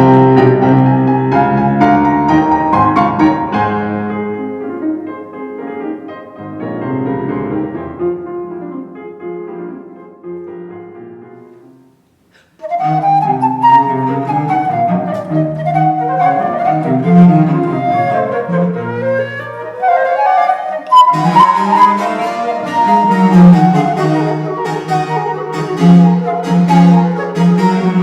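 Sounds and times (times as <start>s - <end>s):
piano: 0.0s - 28.0s
flute: 12.6s - 28.0s.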